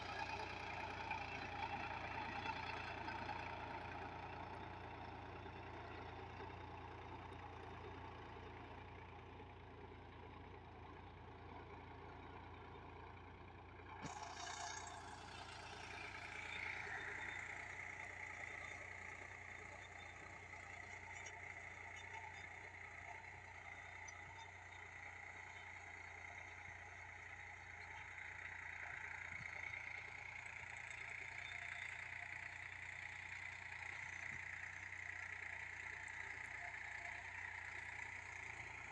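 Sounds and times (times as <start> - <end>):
tractor diesel engine running: 0.0 - 38.9
engine whine: 13.9 - 38.9.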